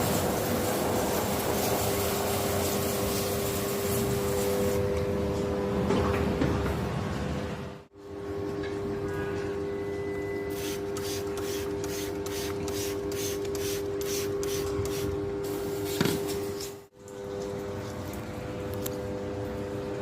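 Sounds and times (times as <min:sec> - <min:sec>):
hissing spray bursts: 0:00.0 - 0:04.8, 0:10.5 - 0:16.0
mechanical hum: 0:00.0 - 0:20.0.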